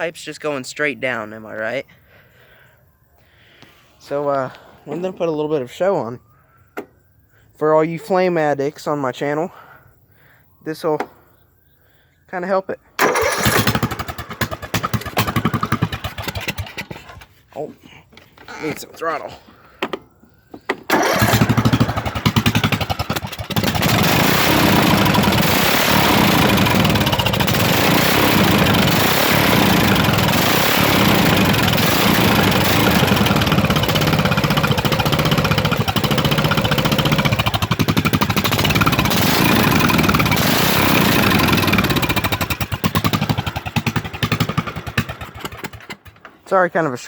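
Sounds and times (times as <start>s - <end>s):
small engine running loud: 13.1s - 16.9s, 20.9s - 46.0s.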